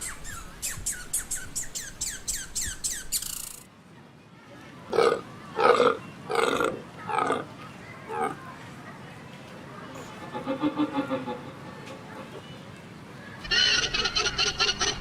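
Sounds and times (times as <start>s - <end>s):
high bird chirps: 0.0s - 3.6s
animal giving rough calls: 4.9s - 7.5s, 8.1s - 8.4s.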